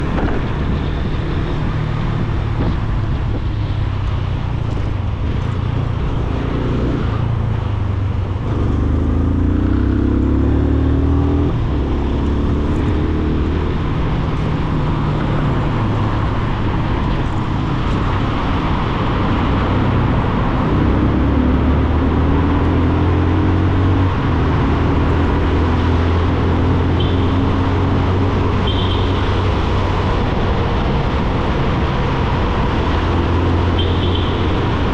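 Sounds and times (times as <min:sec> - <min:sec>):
motorcycle engine accelerating: 0:04.8 - 0:31.8.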